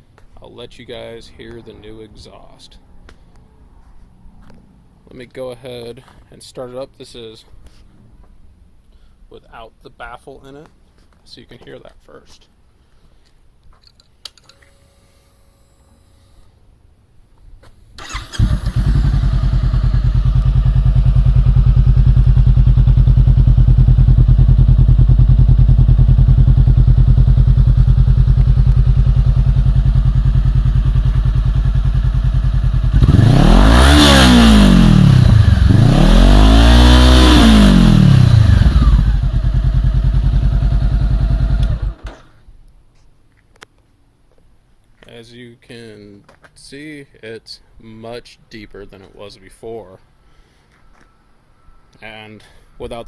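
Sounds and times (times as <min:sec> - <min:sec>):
motorcycle engine idling and revving: 0:18.1 - 0:42.2.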